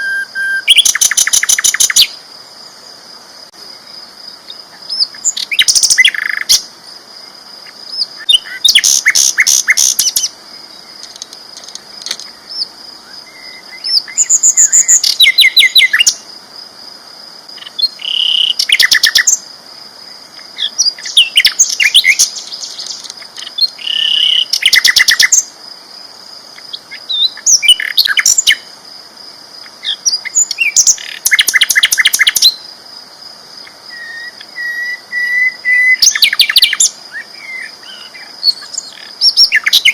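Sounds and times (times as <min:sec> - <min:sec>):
flycatcher singing trilled phrases: 0:00.0 - 0:02.2, 0:04.5 - 0:06.7, 0:07.6 - 0:11.2, 0:12.1 - 0:16.3, 0:17.6 - 0:19.5, 0:20.5 - 0:25.5, 0:26.6 - 0:28.7, 0:29.7 - 0:32.7, 0:33.8 - 0:39.9.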